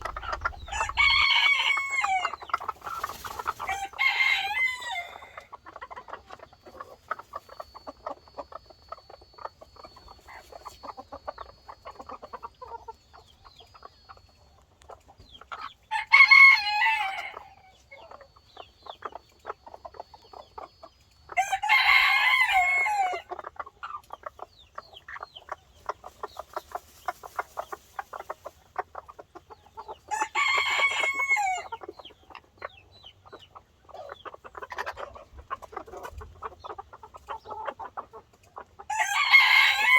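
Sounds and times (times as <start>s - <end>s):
rooster crowing: 0.0s - 2.4s, 3.7s - 5.4s, 15.9s - 17.5s, 30.2s - 31.7s, 38.9s - 39.9s
hens clucking: 0.0s - 39.9s.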